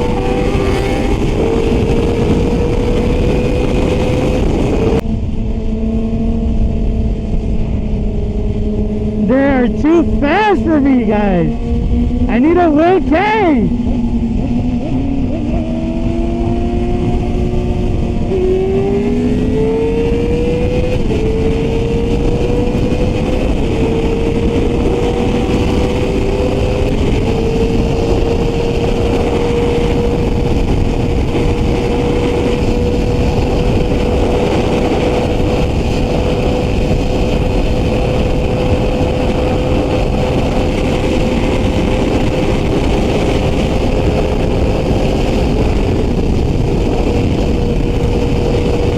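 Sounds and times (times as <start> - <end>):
motorcycle engine revving hard: 0.0 - 10.4, 13.7 - 48.9
wind noise: 0.0 - 48.9.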